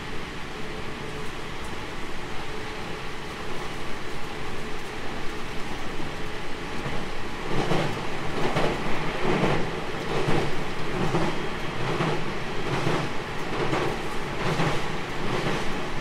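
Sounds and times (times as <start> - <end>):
wheels rumbling on rails: 0.0 - 16.0
train wheels clattering: 6.8 - 15.9.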